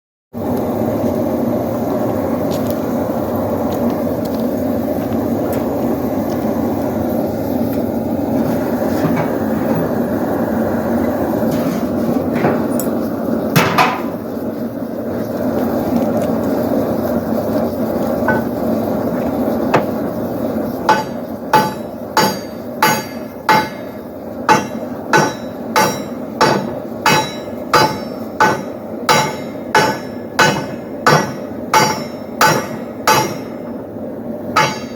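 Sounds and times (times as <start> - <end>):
hammer striking metal on anvil: 18.3 - 18.5, 20.9 - 33.7, 34.6 - 34.9.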